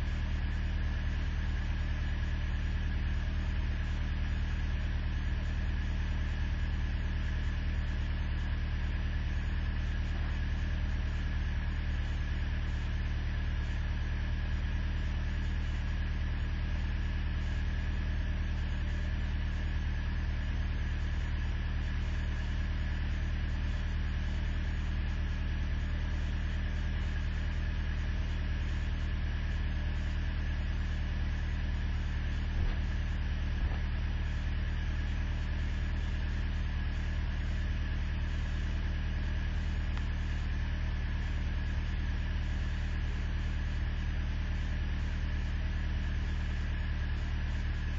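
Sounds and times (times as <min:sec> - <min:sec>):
truck engine idling: 0:26.2 - 0:42.9.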